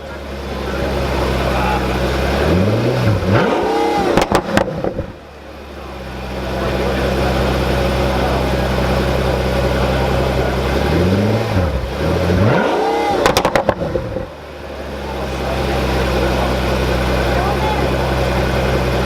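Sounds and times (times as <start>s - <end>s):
car engine idling and revving: 0.0s - 19.0s
exhaust pops and crackles: 2.9s - 5.2s, 13.1s - 14.4s.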